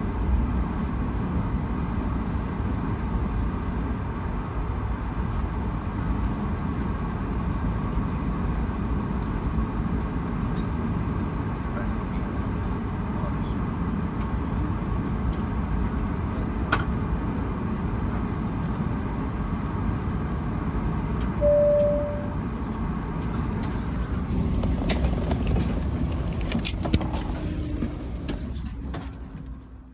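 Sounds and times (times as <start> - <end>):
airliner cabin rumble: 2.0 - 29.9
short chime: 21.4 - 22.4.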